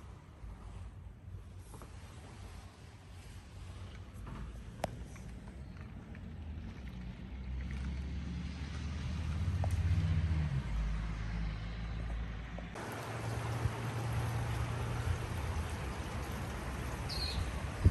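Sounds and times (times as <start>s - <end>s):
hail and rain falling: 12.8s - 17.9s.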